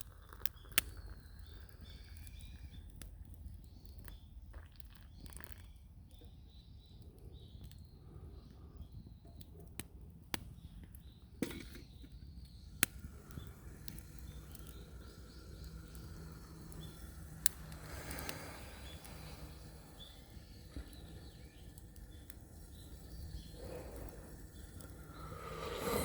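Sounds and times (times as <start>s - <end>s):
wood fire crackling: 0.0s - 5.6s, 7.1s - 26.0s
burning wood popping: 0.0s - 26.0s
faint bird chirps: 10.5s - 26.0s.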